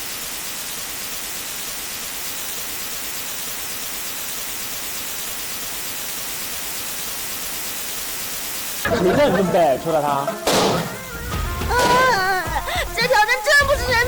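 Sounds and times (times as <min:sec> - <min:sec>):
static hiss: 0:00.0 - 0:14.0.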